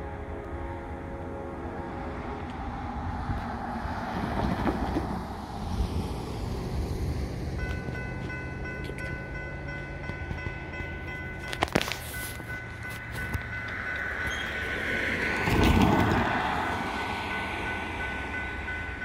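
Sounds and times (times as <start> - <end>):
train horn blast: 0.0 - 2.6
crossing warning bell ringing: 0.0 - 3.5, 6.3 - 19.0
train rushing rumble: 0.0 - 19.0.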